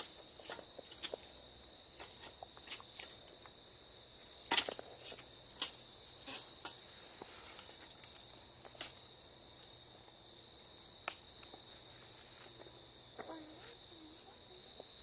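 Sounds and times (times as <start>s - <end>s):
sticks snapping: 5.6s - 5.8s, 11.0s - 11.6s.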